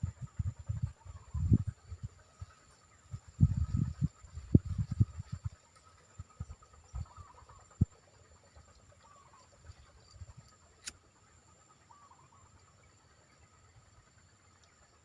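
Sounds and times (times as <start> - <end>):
high insect drone: 0.0 - 15.0
sharp click: 10.8 - 11.0.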